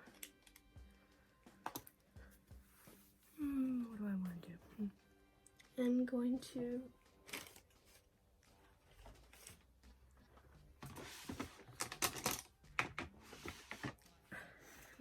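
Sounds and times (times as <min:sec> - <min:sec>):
makeup containers clicking and clattering: 0:10.9 - 0:14.0.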